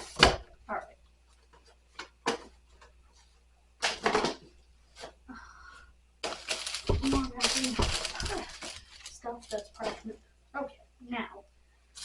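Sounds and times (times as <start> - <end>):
rustling and clatter of kitchen supplies: 6.2 - 10.2.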